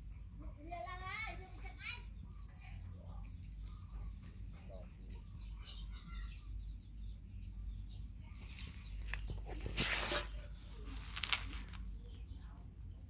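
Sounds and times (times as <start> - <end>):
faint bird calls: 1.3 - 9.8.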